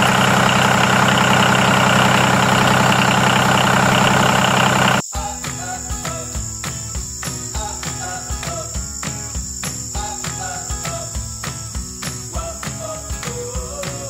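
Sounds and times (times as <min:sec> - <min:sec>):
motor running steadily: 0:00.0 - 0:05.0.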